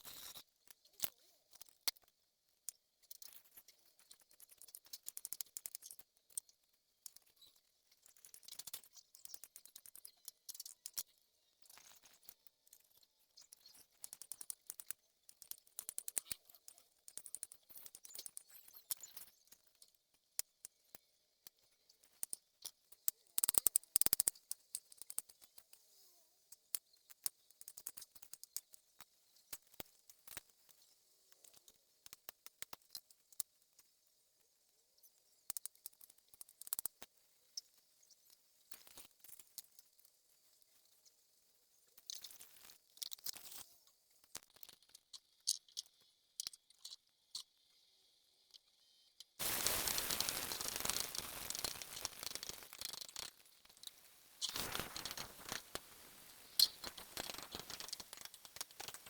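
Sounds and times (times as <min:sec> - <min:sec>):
food crunching while chewed: 0:49.4 - 0:55.8
crackling: 0:49.4 - 0:59.0.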